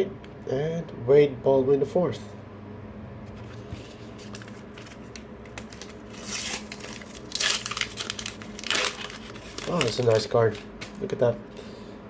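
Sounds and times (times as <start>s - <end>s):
handling stickers: 3.3s - 11.2s
sticker wrapper crinkling and tearing: 4.2s - 11.1s.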